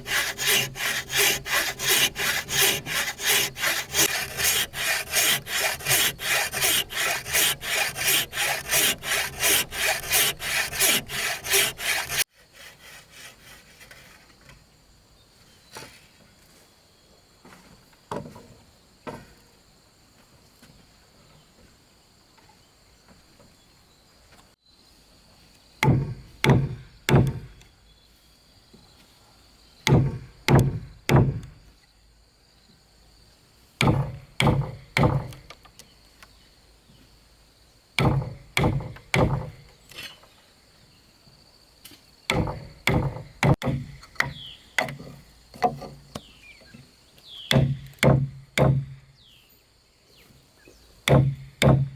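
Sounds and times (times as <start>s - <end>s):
tool striking wood: 0.0s - 12.2s, 25.8s - 27.6s, 29.9s - 31.6s, 33.8s - 35.6s, 38.0s - 39.6s, 42.3s - 46.3s, 47.5s - 49.0s, 51.1s - 51.9s
faint insect chirr: 12.2s - 51.9s.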